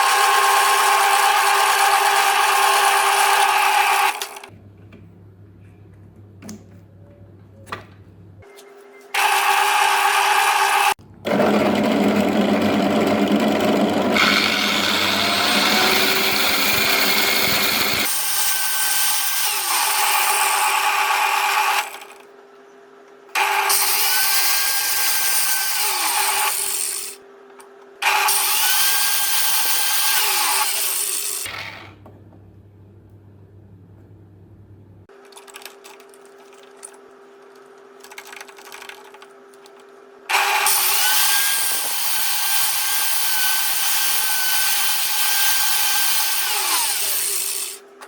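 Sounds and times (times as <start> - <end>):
power drill running: 0.0 - 4.5, 9.2 - 22.1, 40.3 - 47.8.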